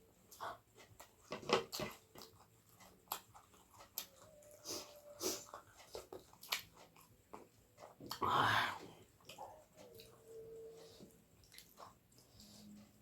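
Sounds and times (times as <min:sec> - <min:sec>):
chewing with lip smacks: 0:00.3 - 0:08.2, 0:10.8 - 0:13.0.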